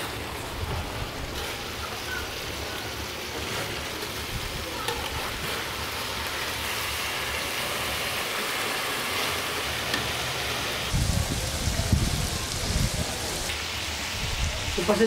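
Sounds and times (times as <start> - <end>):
spatula stirring in pan: 0.0 - 10.8
chicken sizzling in oil: 0.0 - 15.0.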